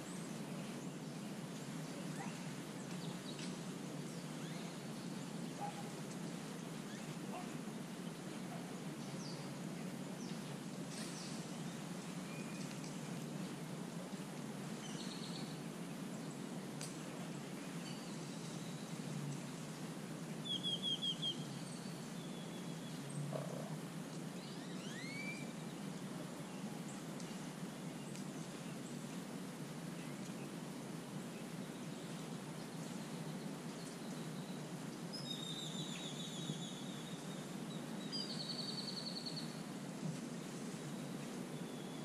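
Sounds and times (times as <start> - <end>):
low background noise: 0.0 - 42.0
small birds chirping: 24.4 - 29.2.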